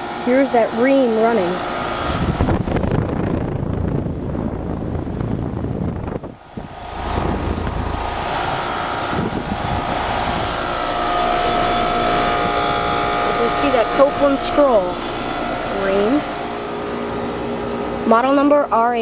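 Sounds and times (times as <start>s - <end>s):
condenser fan whoosh: 1.3s - 17.0s
compressor hum: 4.2s - 16.5s.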